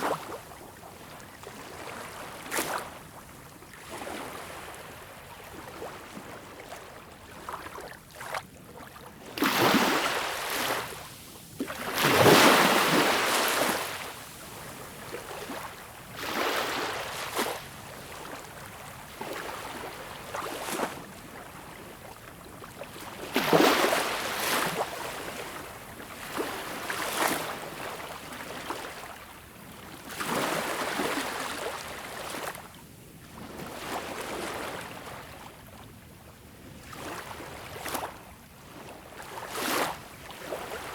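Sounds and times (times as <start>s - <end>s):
ocean waves breaking on beach: 9.3s - 17.8s.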